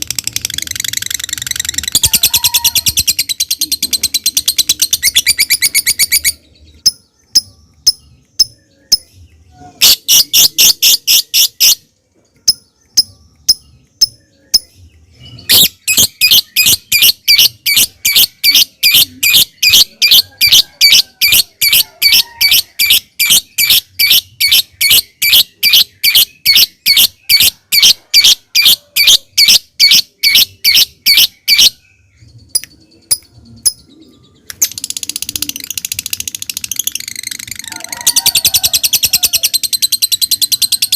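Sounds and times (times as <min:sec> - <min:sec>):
lovebird shrill chatter: 0:00.2 - 0:06.4, 0:36.8 - 0:40.9.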